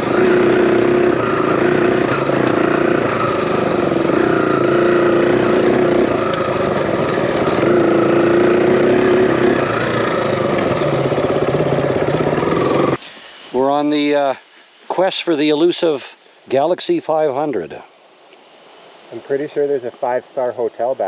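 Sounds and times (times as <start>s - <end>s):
dirt bike engine: 0.0s - 13.0s
rushing noise: 0.0s - 14.0s.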